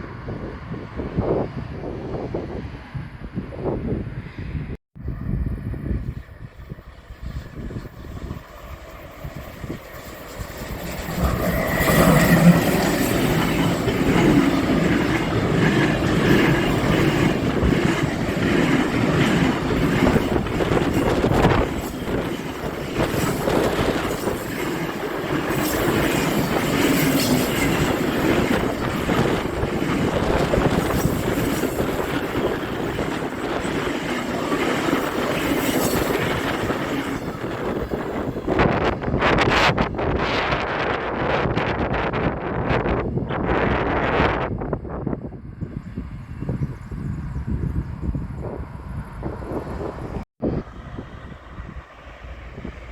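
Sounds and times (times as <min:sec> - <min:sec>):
rail rumble and wheel noise: 0:00.0 - 0:52.9
train passing: 0:00.0 - 0:52.9
rail-joint clatter: 0:10.0 - 0:39.5.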